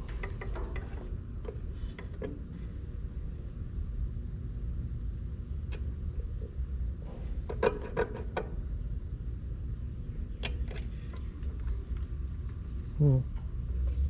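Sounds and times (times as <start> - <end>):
light metallic rattles: 0.0 - 3.2
steady low rumble: 0.0 - 7.5.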